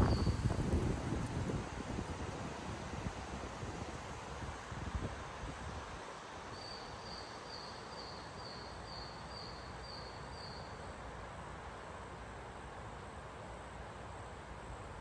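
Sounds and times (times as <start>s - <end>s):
gusty storm wind: 0.0s - 6.0s.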